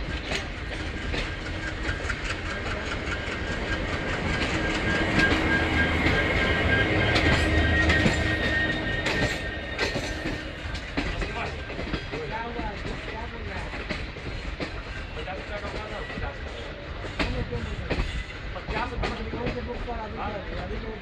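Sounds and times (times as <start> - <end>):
train wheels clickety-clack: 0.0 - 21.0
steady high whine: 1.0 - 12.0.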